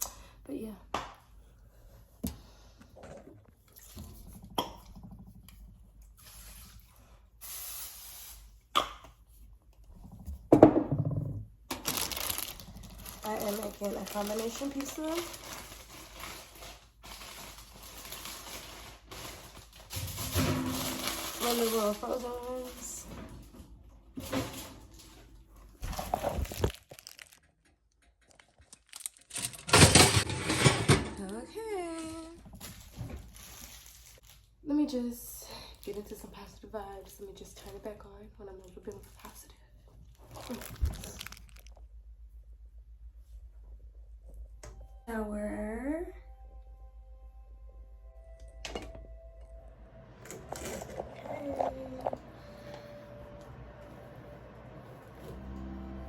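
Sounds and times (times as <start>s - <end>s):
plastic wrapping crinkling and tearing: 11.7s - 30.7s, 31.6s - 34.6s, 38.4s - 42.0s.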